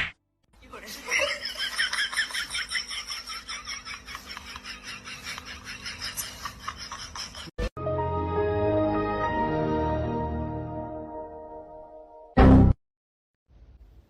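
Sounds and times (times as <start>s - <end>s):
person laughing: 1.0s - 7.7s.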